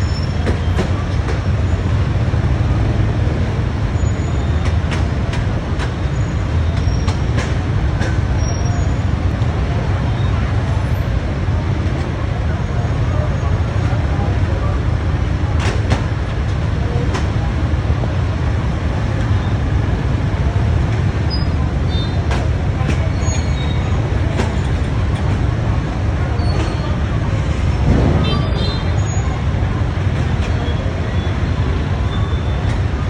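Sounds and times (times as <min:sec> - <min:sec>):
road traffic rumble: 0:00.0 - 0:33.0.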